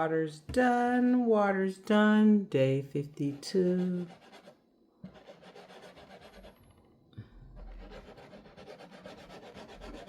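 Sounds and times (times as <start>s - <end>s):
faint rubbing and scraping: 3.2s - 10.0s.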